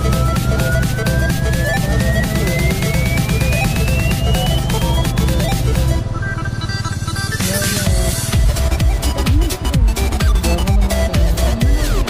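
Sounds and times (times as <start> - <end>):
bass notes sliding down in pitch: 0.0 - 6.3
electronic dance music: 0.0 - 12.0.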